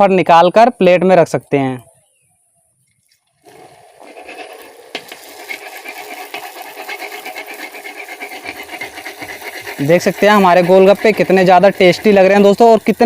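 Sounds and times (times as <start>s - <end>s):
deep-frying sizzle in hot oil: 3.5s - 13.0s.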